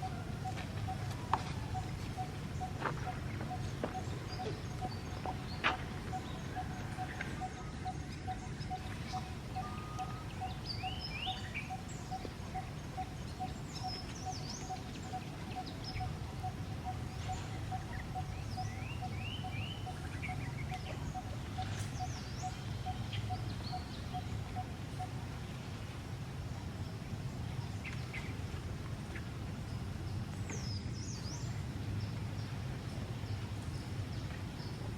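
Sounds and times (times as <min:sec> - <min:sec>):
steady low rumble: 0:00.0 - 0:34.9
small birds chirping: 0:00.9 - 0:24.3.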